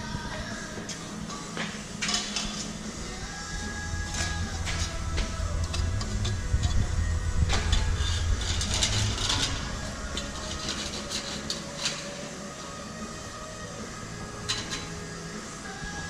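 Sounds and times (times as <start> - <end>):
low engine rumble: 3.0 - 11.7
metallic clicks and clatter: 7.5 - 12.2.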